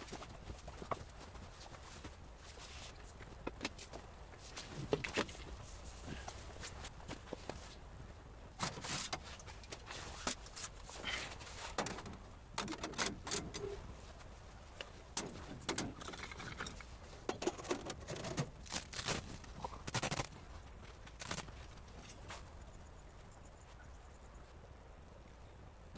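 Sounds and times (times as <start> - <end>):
rustling: 16.4 - 23.8.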